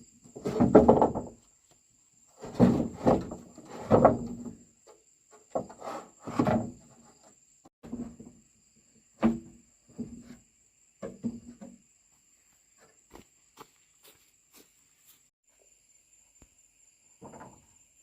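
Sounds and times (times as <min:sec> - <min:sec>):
hard objects knocking and scraping: 0:00.3 - 0:01.4.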